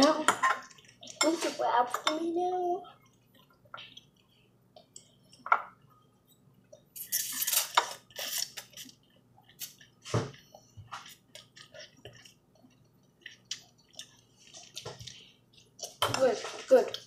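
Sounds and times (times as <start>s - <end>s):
wet eating sounds: 6.6s - 17.0s.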